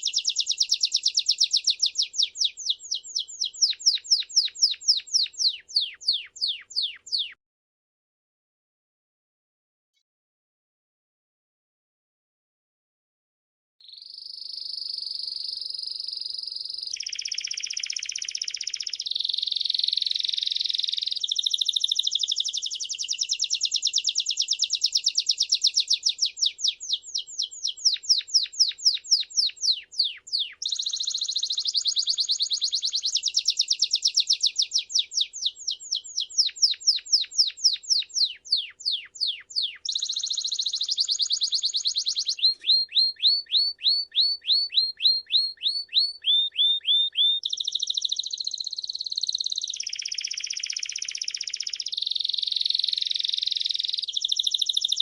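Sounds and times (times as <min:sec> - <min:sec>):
songbird singing rapid trills: 0:00.0 - 0:07.4, 0:13.8 - 0:55.0.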